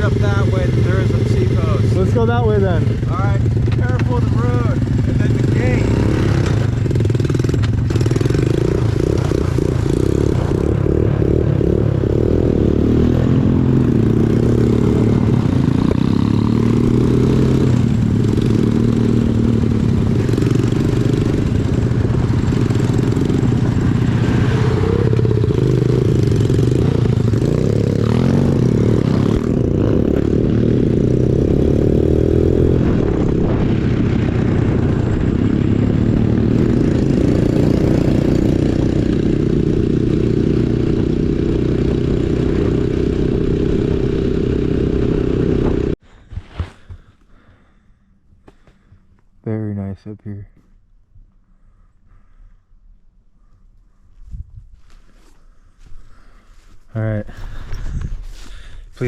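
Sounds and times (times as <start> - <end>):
small off-road engine revving: 0.0 - 46.0.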